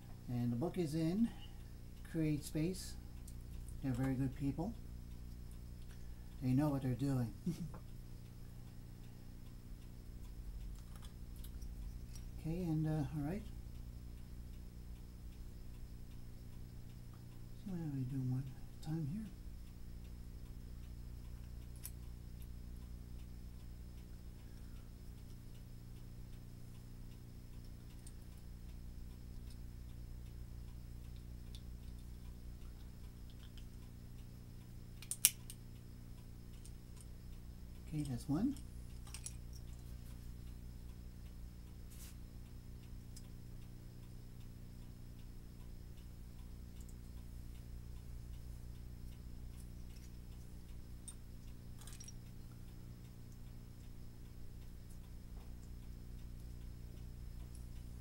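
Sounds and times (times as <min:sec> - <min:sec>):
low hum: 0:00.0 - 0:58.0
clock ticking: 0:01.6 - 0:58.0
burst of small clicks: 0:35.0 - 0:35.6.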